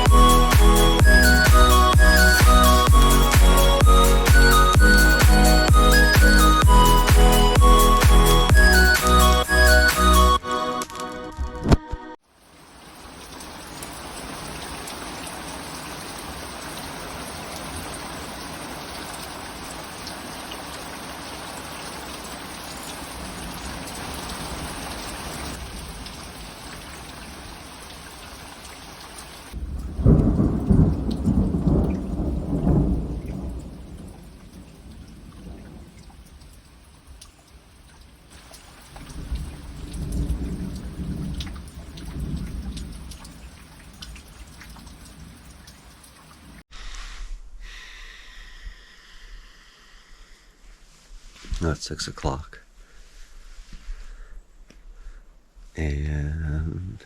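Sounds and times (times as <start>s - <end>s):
heavy rain: 0.0s - 10.4s, 12.3s - 48.5s
thunder rumbling: 23.1s - 27.6s, 29.5s - 36.6s, 38.9s - 45.6s.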